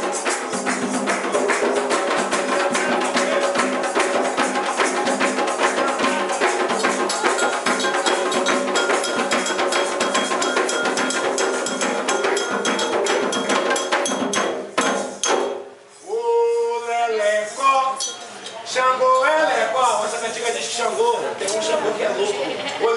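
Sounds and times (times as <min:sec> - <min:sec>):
drums: 0:00.0 - 0:15.9
clacking wood block or bell: 0:07.1 - 0:15.6.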